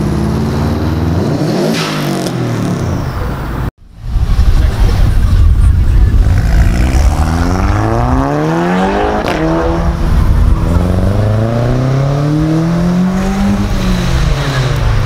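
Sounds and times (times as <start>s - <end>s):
car engines revving: 0.0s - 15.0s
sharp crack: 1.6s - 2.8s
car accelerating off: 4.3s - 15.0s.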